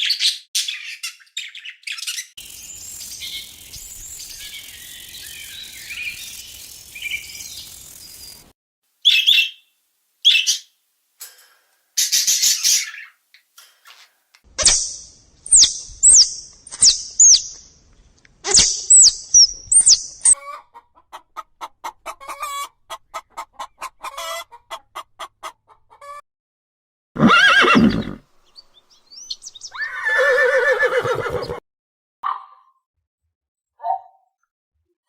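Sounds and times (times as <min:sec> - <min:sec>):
high falling whistled calls: 0:01.4 - 0:10.7, 0:14.6 - 0:17.6, 0:18.5 - 0:20.4, 0:29.1 - 0:31.6
horse whinnying: 0:27.2 - 0:28.2, 0:29.7 - 0:31.6.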